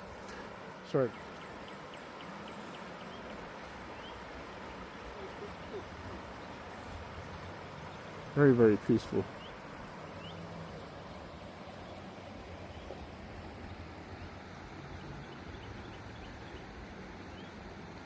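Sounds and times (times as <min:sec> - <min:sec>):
steady background hiss: 0:00.0 - 0:18.0
faint bird chirps: 0:00.1 - 0:08.2.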